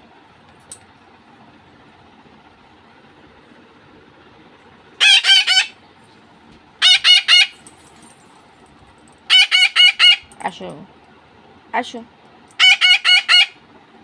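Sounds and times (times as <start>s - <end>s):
parakeets screeching: 5.0s - 5.8s, 6.8s - 7.6s, 9.3s - 10.3s, 12.6s - 13.6s.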